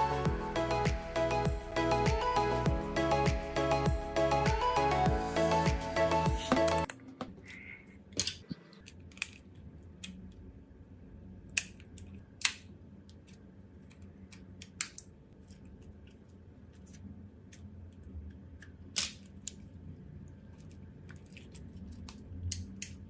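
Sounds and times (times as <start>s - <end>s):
background music: 0.0s - 6.9s.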